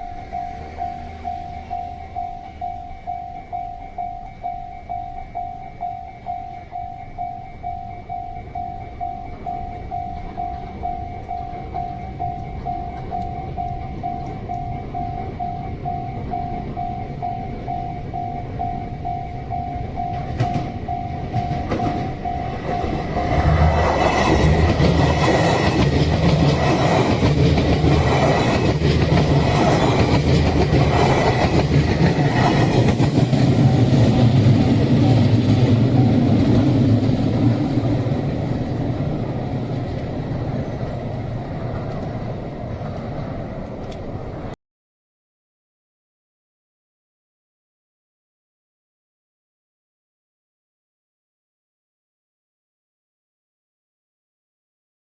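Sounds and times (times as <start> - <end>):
level crossing bell dinging: 0.0 - 23.4
train wheels clattering: 20.0 - 38.4.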